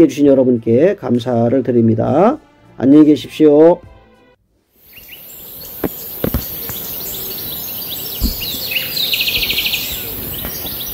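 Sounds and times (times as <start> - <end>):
steady high hiss: 4.4 - 10.9
small birds chirping and twittering: 4.8 - 10.9
low thumps: 8.2 - 9.7.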